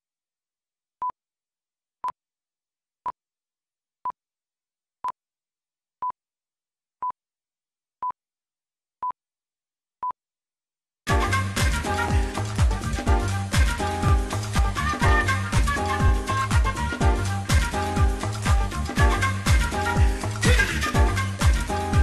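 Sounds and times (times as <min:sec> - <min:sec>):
music: 0:11.1 - 0:22.0.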